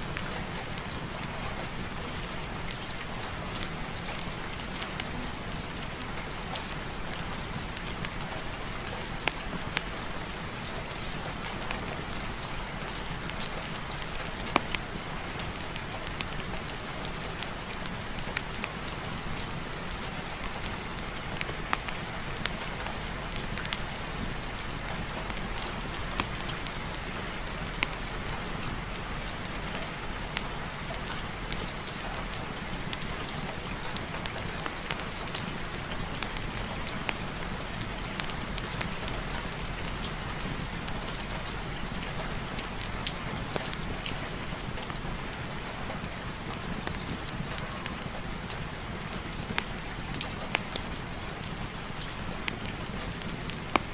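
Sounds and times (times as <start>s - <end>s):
sharp ticks and pops: 24.9s - 28.1s, 52.5s - 53.9s.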